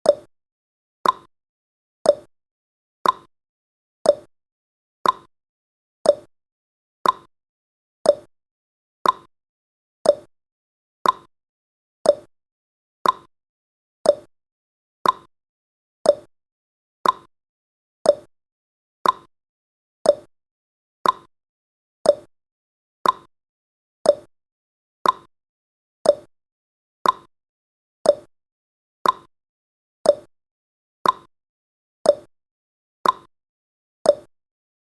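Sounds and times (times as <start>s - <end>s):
clock ticking: 1.0s - 1.3s, 5.0s - 5.3s, 7.0s - 7.3s, 8.1s - 8.3s, 9.0s - 9.3s, 10.1s - 10.3s, 11.0s - 11.3s, 12.1s - 12.3s, 13.0s - 13.3s, 14.1s - 14.3s, 15.0s - 15.3s, 16.1s - 16.3s, 17.0s - 17.3s, 18.1s - 18.3s, 19.0s - 19.3s, 20.1s - 20.3s, 21.0s - 21.3s, 22.1s - 22.3s, 23.0s - 23.3s, 24.1s - 24.3s, 25.0s - 25.3s, 26.0s - 26.3s, 27.0s - 27.3s, 28.1s - 28.3s, 29.0s - 29.3s, 30.1s - 30.3s, 31.0s - 31.3s, 32.1s - 32.3s, 33.0s - 33.3s, 34.1s - 34.3s.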